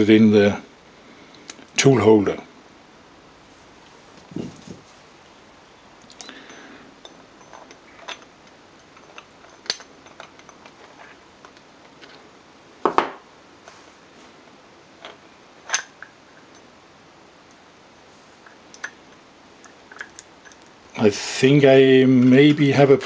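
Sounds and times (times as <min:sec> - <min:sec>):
metal parts clinking: 0:06.1 - 0:12.2, 0:15.0 - 0:16.6, 0:19.6 - 0:20.7.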